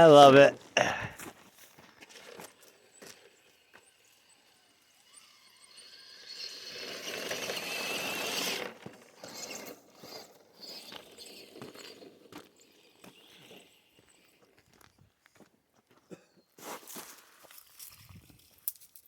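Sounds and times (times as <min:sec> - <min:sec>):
toy truck motor whining: 0:02.0 - 0:14.9.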